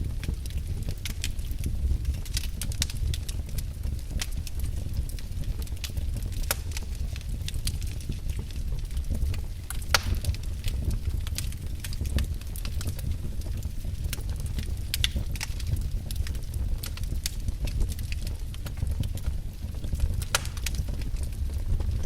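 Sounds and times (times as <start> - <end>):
low rumble of flames: 0.0 - 22.0
wood fire crackling: 0.0 - 22.0
loud fire pop: 9.9 - 10.4.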